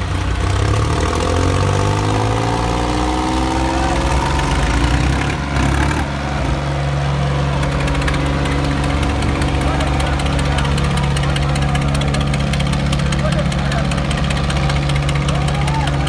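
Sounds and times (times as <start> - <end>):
diesel tractor engine running: 0.0 - 16.0.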